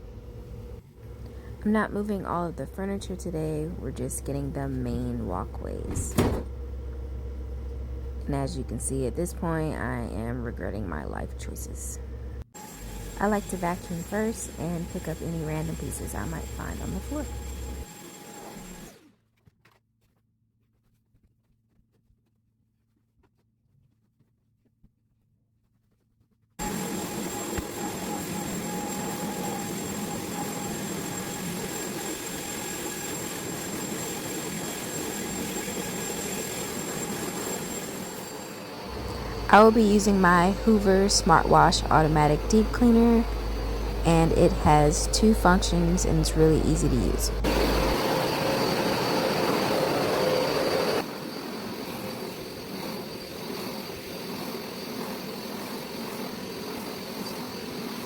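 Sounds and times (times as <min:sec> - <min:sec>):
vacuum cleaner on carpet: 0:12.6 - 0:19.0, 0:26.6 - 0:58.0.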